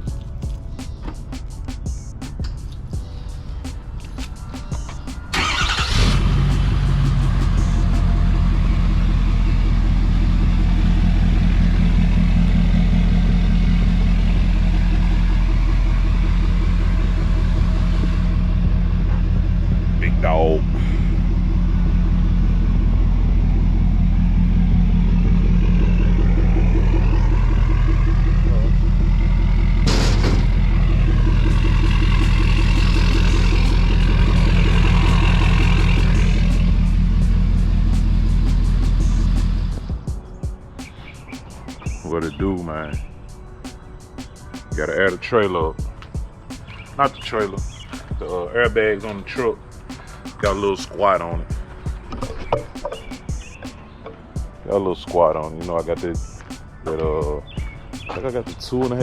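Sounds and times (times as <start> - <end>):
pickup truck engine idling: 4.8 - 40.0.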